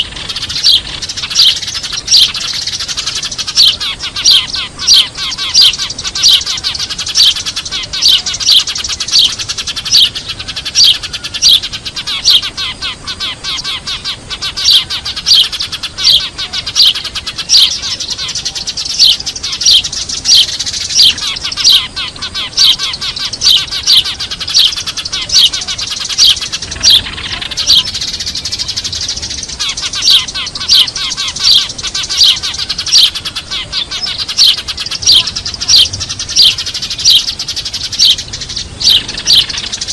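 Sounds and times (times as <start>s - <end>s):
dense twittering of sparrows: 0.0s - 39.9s
sparrows chirping: 0.0s - 39.9s.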